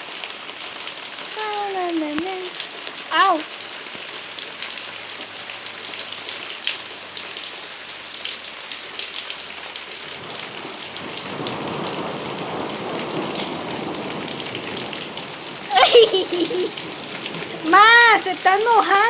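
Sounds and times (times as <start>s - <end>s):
steady rain falling: 0.0s - 19.0s
low rushing water: 9.4s - 19.0s.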